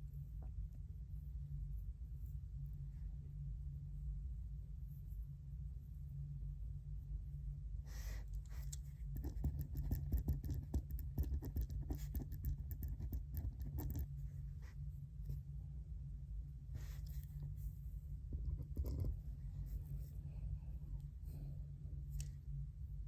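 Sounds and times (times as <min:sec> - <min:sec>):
steady low hum: 0:00.0 - 0:23.0
pen scratching on paper: 0:09.2 - 0:14.1, 0:18.4 - 0:19.2.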